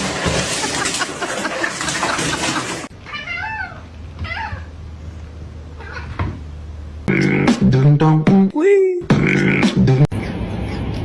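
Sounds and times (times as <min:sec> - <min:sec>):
cat meowing: 0:03.0 - 0:04.7, 0:05.8 - 0:06.2
loud music with a beat: 0:07.1 - 0:08.5, 0:09.1 - 0:10.1.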